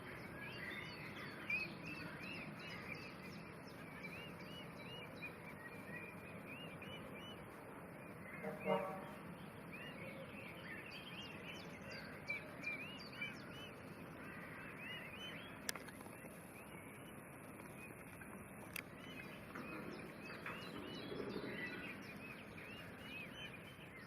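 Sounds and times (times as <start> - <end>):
lovebirds chirping: 0.0 - 24.0
steady background noise: 0.0 - 24.0
sharp clicks: 15.6 - 16.4, 17.4 - 19.6.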